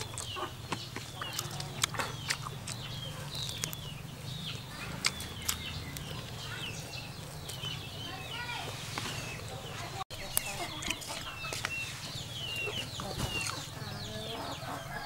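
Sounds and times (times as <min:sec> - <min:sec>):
person chewing: 0:00.0 - 0:03.9, 0:04.6 - 0:06.3
birds chirping: 0:00.0 - 0:15.0.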